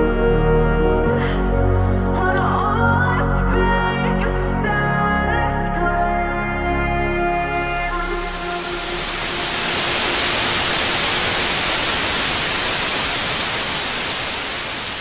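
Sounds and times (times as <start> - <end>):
white noise static hiss: 7.0 - 15.0.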